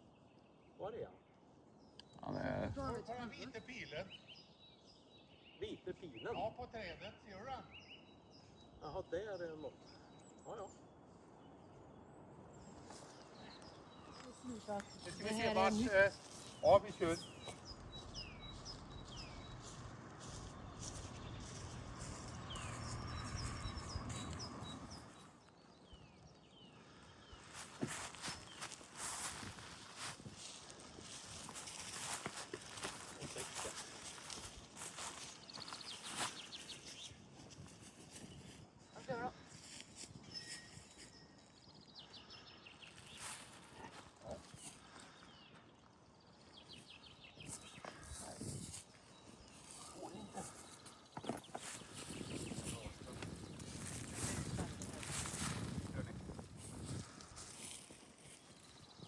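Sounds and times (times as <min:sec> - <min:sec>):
low outdoor noise: 0:00.0 - 0:38.0
small bird singing: 0:00.0 - 0:59.0
songbird trilling and whistling: 0:40.2 - 0:41.4.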